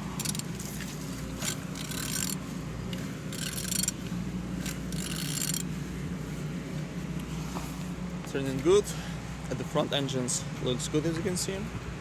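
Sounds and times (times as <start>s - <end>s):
engine crank ratcheting and rubbing: 0.0s - 6.0s
steady low hum: 0.0s - 12.0s.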